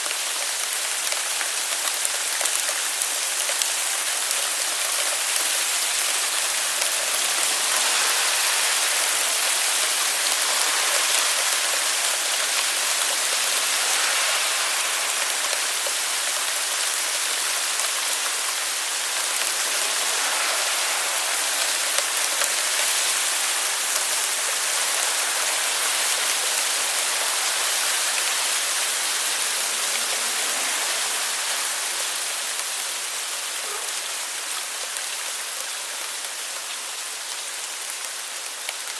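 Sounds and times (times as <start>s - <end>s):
hail falling heavily: 0.0s - 38.9s.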